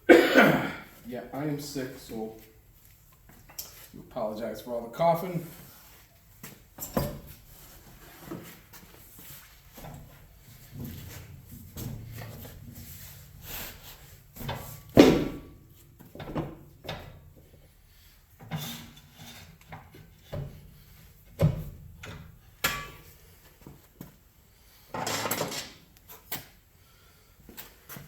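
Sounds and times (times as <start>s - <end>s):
tire scraping on rim: 10.1s - 15.5s.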